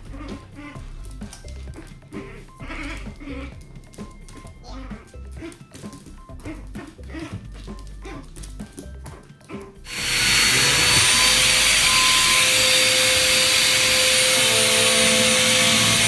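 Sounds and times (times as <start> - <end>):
faint steady tones: 9.9 - 16.0
loud steady hiss: 9.9 - 16.0.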